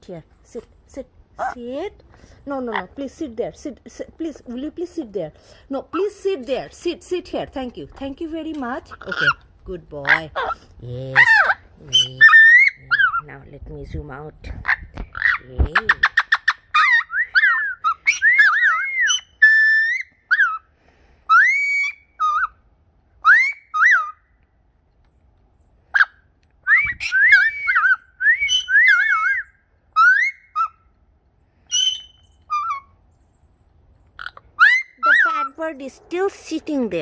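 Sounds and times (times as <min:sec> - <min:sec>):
whistled notes gliding: 0:17.0 - 0:20.1, 0:26.6 - 0:30.8, 0:31.7 - 0:32.8.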